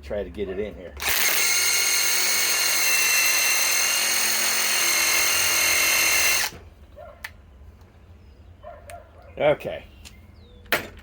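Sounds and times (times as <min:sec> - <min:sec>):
impact wrench whining: 0:01.0 - 0:06.6.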